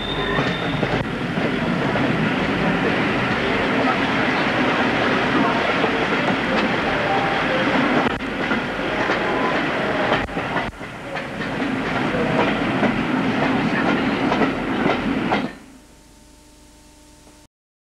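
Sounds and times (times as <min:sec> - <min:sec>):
train wheels clicking over joints: 0:00.0 - 0:03.6, 0:04.3 - 0:15.6
faint tape hiss: 0:15.6 - 0:17.5.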